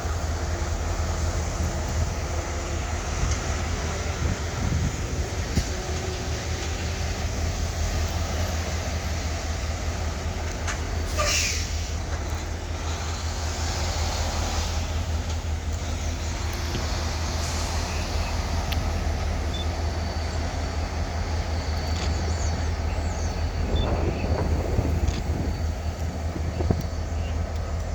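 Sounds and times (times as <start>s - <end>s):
locomotive low rumble: 0.0s - 27.9s
brief hiss: 11.1s - 12.0s.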